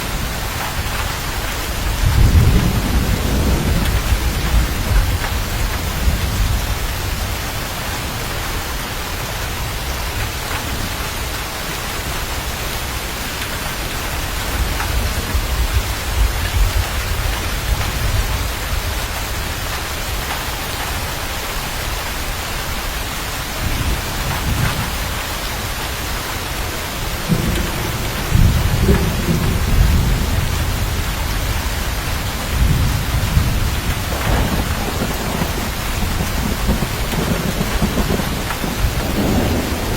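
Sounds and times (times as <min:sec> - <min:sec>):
heavy rain: 0:00.0 - 0:39.9
rolling thunder: 0:00.2 - 0:08.1, 0:14.2 - 0:20.9, 0:23.6 - 0:25.2, 0:26.9 - 0:39.9.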